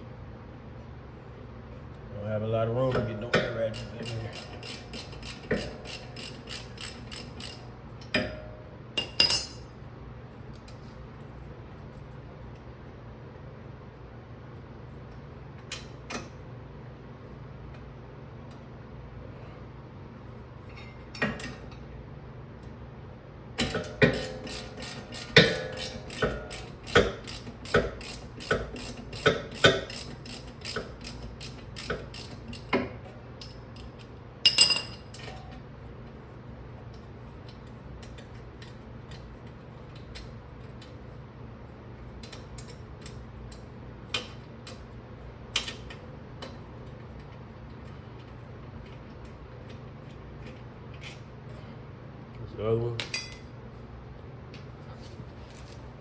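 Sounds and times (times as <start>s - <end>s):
hand ratchet clicking: 3.4s - 7.6s, 23.6s - 32.7s
metal clink: 9.0s - 9.7s, 53.0s - 53.5s.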